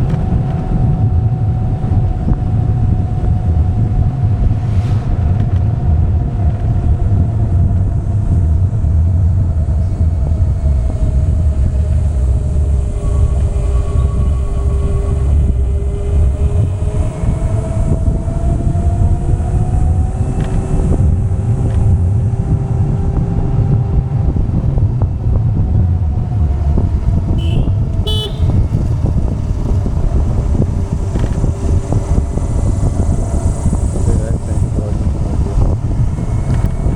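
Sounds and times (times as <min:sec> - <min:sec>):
road and wind rumble: 0:00.0 - 0:36.9
vehicle engine running: 0:00.0 - 0:36.9
short horn beep: 0:27.4 - 0:28.6.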